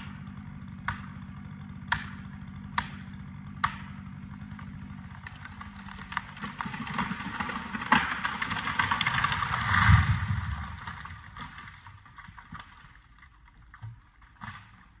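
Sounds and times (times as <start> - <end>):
tree crackling and snapping: 0.0 - 15.0.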